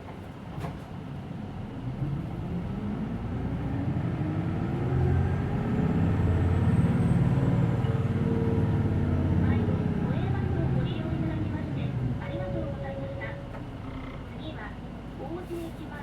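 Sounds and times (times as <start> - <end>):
bus engine accelerating: 1.3 - 15.0.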